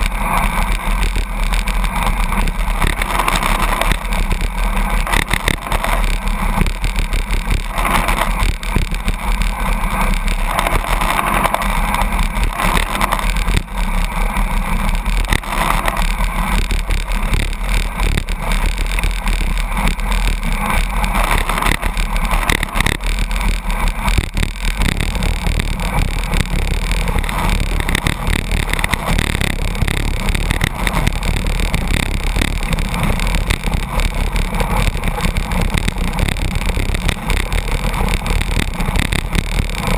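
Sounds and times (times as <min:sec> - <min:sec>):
deep rumble: 0:00.0 - 0:39.9.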